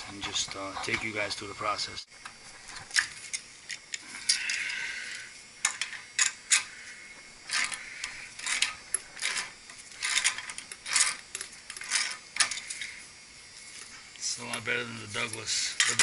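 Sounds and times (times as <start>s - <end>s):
metal tools clinking and rattling: 8.4s - 12.9s, 13.7s - 16.0s.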